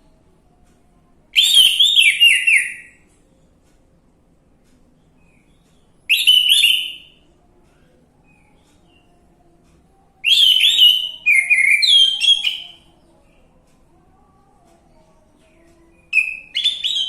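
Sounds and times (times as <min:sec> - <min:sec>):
thrush whistled song: 0:01.4 - 0:03.0, 0:06.1 - 0:07.1, 0:10.2 - 0:12.8, 0:16.2 - 0:17.0.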